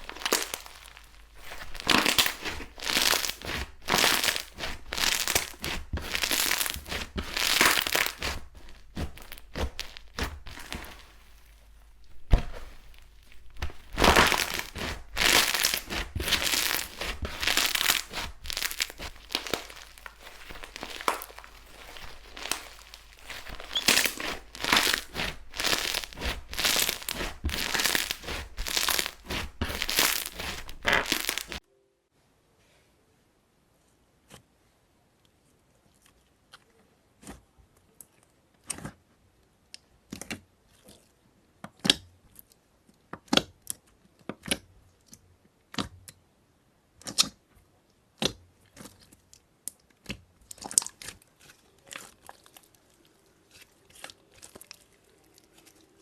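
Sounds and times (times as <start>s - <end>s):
slime crinkling by hand: 0.0s - 31.6s, 50.5s - 56.0s.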